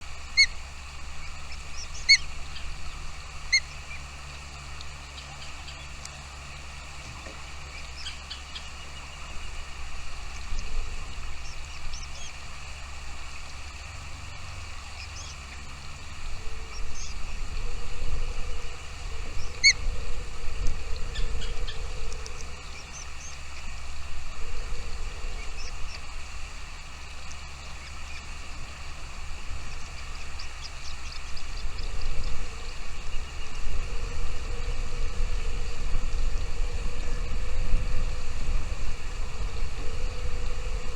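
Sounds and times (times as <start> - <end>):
steady low rumble: 0.0 - 40.9.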